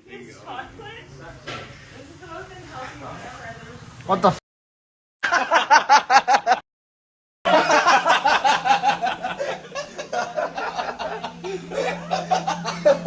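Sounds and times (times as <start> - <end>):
several people laughing: 5.2 - 6.6, 7.5 - 13.0
person laughing: 7.5 - 13.0.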